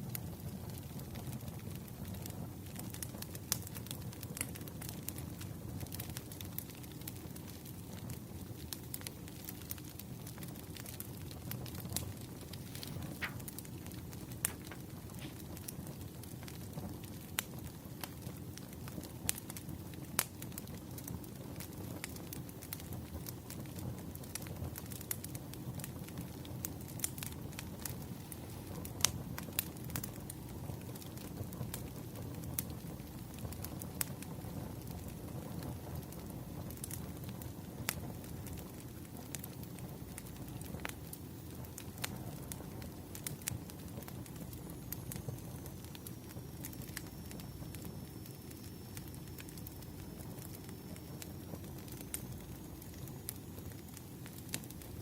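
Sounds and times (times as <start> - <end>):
firewood burning with crackles: 0.0 - 55.0
low rush of flame: 10.5 - 17.4, 26.1 - 33.7.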